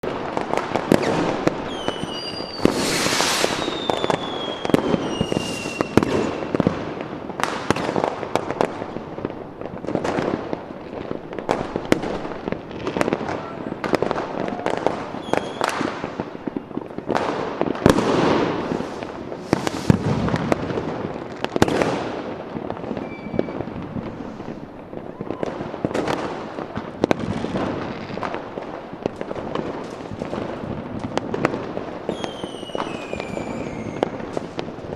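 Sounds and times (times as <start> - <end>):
fireworks bangs and crackling: 0.0 - 34.9
descending firework whistle: 0.9 - 6.7, 12.8 - 16.8, 17.9 - 20.5, 22.9 - 24.4, 25.0 - 25.7, 32.1 - 34.3.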